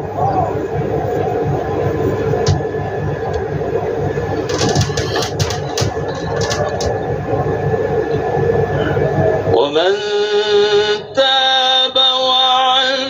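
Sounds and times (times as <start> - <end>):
low rumble with hiss: 0.0 - 13.0
run of clicks: 4.4 - 7.0.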